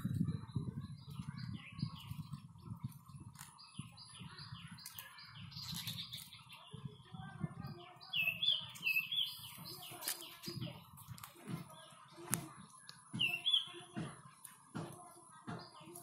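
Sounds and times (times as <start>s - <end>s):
bird chirping: 0.0s - 14.0s
low irregular thuds: 9.6s - 16.0s.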